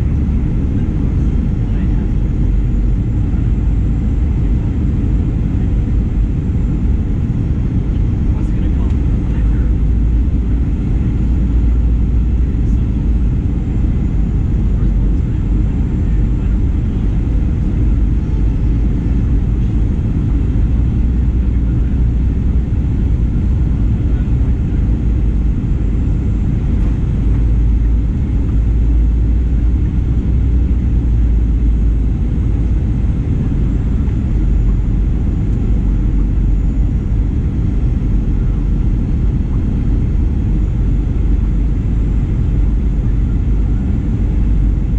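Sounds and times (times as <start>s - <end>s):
cabin airflow: 0.0s - 44.9s
jet engines rumbling in cabin: 0.0s - 44.9s.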